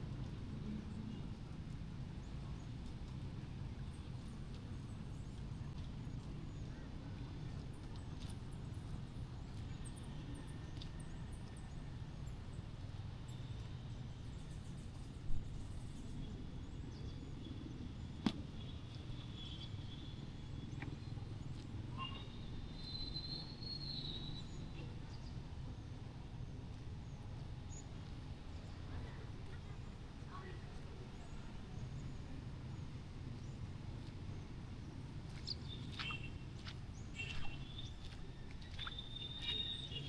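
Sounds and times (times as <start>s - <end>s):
distant traffic rumble: 15.4s - 40.0s.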